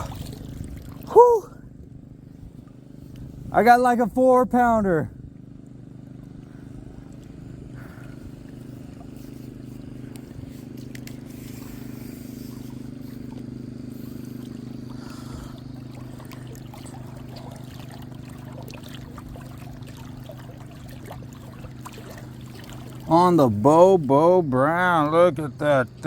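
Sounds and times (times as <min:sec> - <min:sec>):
small splashes and knocks: 0:00.0 - 0:01.1, 0:07.0 - 0:23.1
trickling water: 0:00.0 - 0:03.4, 0:05.3 - 0:25.3
steady low hum: 0:00.0 - 0:26.0.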